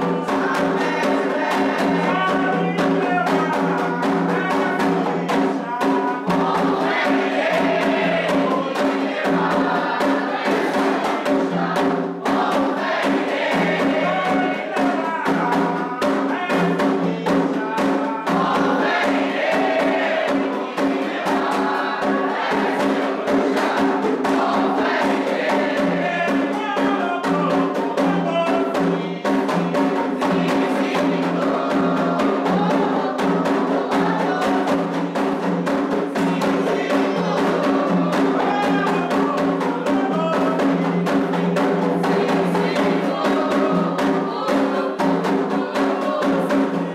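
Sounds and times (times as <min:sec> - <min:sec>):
group of voices chanting: 0:00.0 - 0:35.5, 0:36.1 - 0:46.9
hand drums beating: 0:00.0 - 0:46.9.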